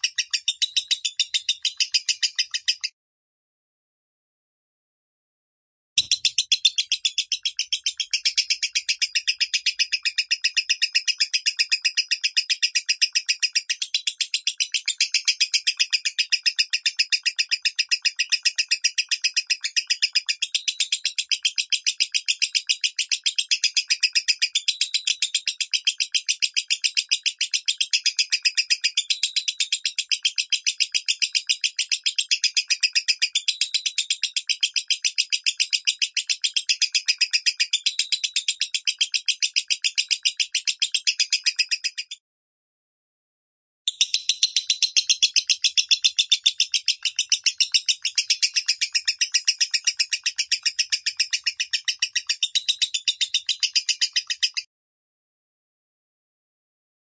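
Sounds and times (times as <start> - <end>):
bird chattering shrill chirps: 6.0 - 10.7, 43.9 - 54.7.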